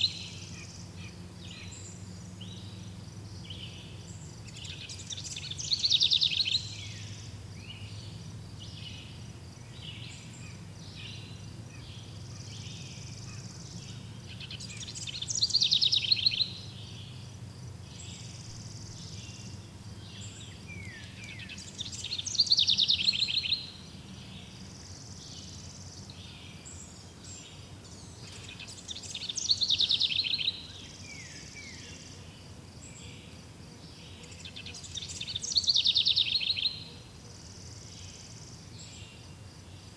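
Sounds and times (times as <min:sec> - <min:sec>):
soft bird chirps: 0:17.9 - 0:32.3.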